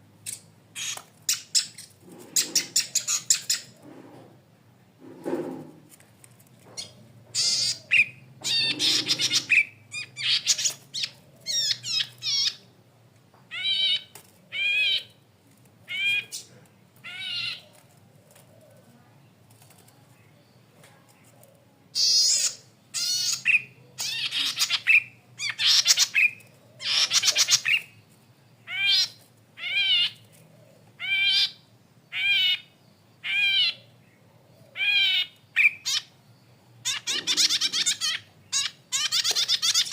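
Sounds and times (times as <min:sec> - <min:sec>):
bird buzzy calls and trills: 0:00.2 - 0:04.2, 0:06.8 - 0:12.8, 0:21.9 - 0:39.9.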